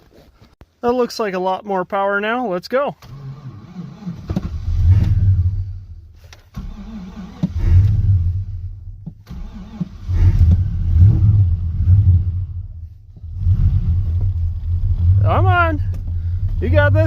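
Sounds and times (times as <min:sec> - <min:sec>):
starter cranking engine: 0:06.3 - 0:08.2, 0:09.2 - 0:11.2.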